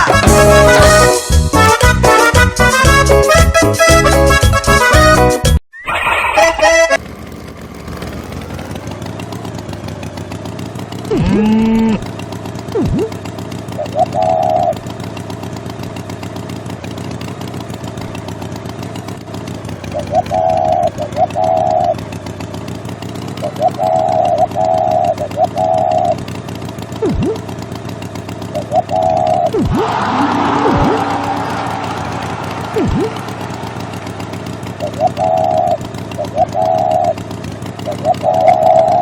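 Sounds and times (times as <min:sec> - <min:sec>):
small engine running: 0:00.0 - 0:05.4, 0:06.3 - 0:39.0
short warbling calls: 0:05.7 - 0:07.0.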